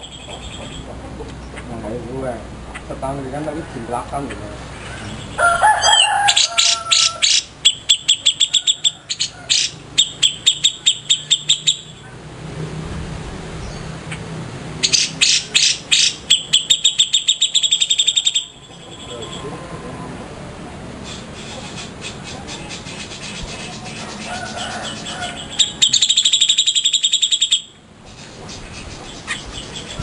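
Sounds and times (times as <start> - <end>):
songbird rapid high chirps: 0.0 - 1.0, 6.0 - 12.0, 14.8 - 19.5, 21.0 - 30.0
slurred whistled bird notes: 6.0 - 12.0, 14.8 - 19.5, 21.0 - 30.0.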